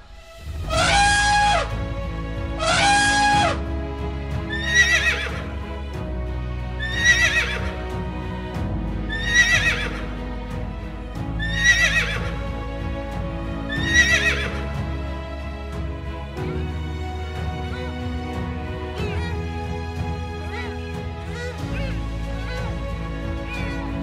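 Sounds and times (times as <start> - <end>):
background music: 0.0 - 24.0
horse whinnying: 4.5 - 5.4, 6.8 - 7.7, 9.1 - 10.0, 11.4 - 12.3, 13.7 - 14.6.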